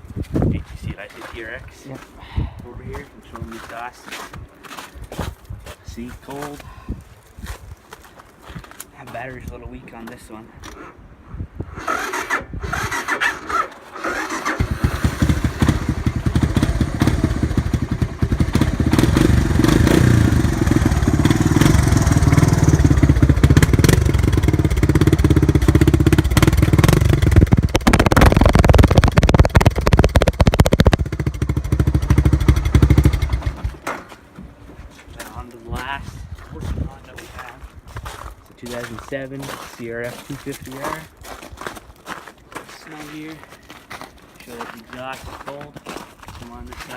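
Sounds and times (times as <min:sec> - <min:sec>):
engine cranking and running: 0:11.8 - 0:33.8.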